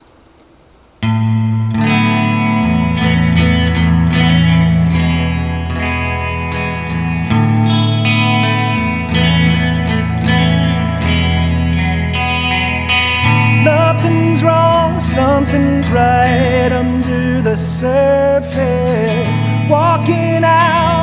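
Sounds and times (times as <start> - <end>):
guitar picking notes: 1.0 - 21.0.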